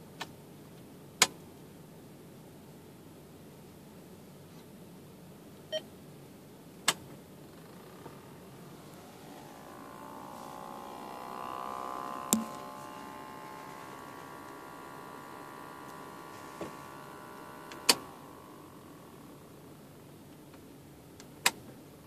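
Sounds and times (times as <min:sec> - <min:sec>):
electric whine from car dashboard: 0:05.6 - 0:22.0.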